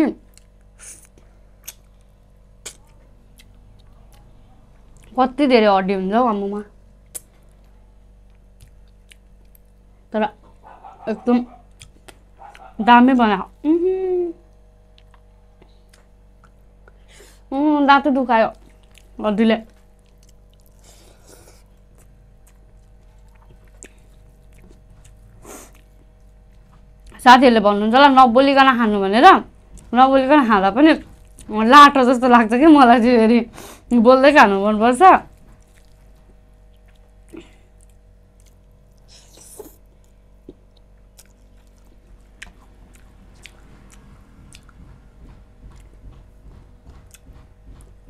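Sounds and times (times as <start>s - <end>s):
low steady hum: 0.0s - 48.0s
wet mouth clicks: 0.3s - 1.9s, 2.6s - 3.9s, 15.0s - 17.0s
person chewing food: 0.3s - 5.1s, 7.0s - 9.8s, 10.5s - 12.8s, 14.8s - 17.1s, 18.6s - 27.2s, 29.6s - 29.9s, 31.0s - 31.5s, 35.3s - 47.4s
wet mouth clicks and smacks: 0.4s - 1.9s.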